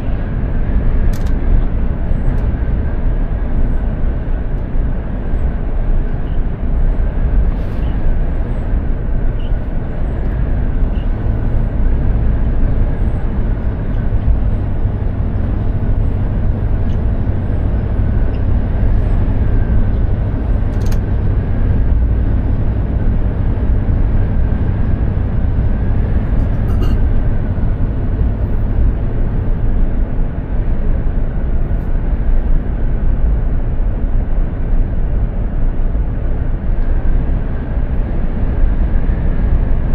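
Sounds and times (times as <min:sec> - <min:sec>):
truck engine and road rumble: 0:00.0 - 0:39.9.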